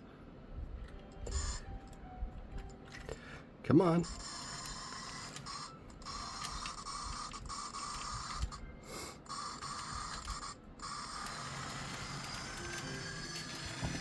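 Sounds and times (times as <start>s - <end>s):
model train motor whine: 4.0s - 14.0s.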